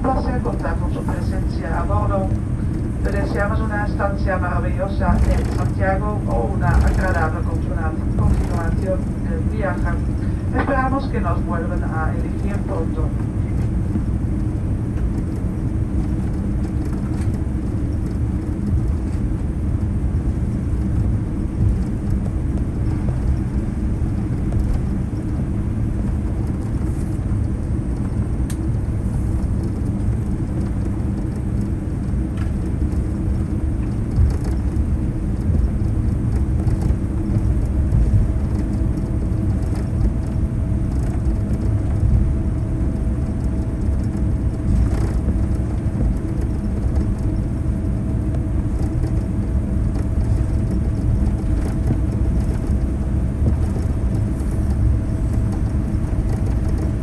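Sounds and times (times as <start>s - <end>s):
airliner cabin rumble while taxiing: 0.0s - 57.0s.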